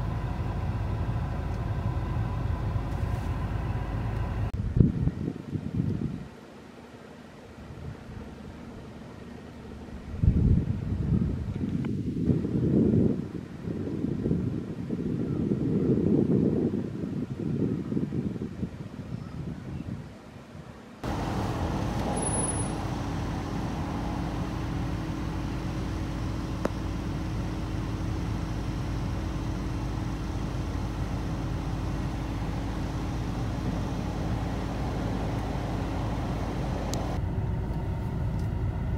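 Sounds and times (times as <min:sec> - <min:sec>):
vehicle engine running: 0:00.0 - 0:04.6, 0:21.0 - 0:38.9.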